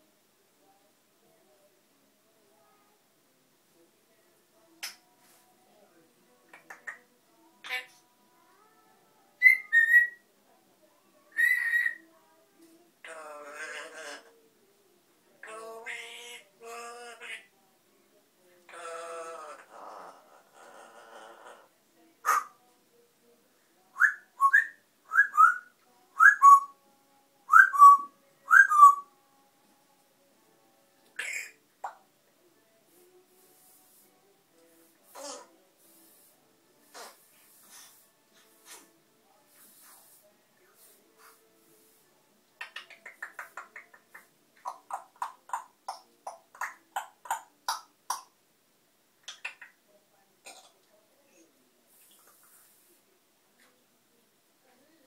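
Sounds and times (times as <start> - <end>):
parrot whistling: 9.4 - 10.2
parrot making sharp pops: 49.2 - 49.8.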